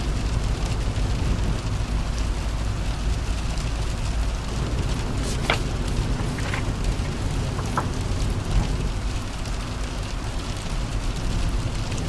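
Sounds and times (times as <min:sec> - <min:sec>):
car driving rumble: 0:00.0 - 0:12.0
rain falling on a car: 0:00.0 - 0:12.0.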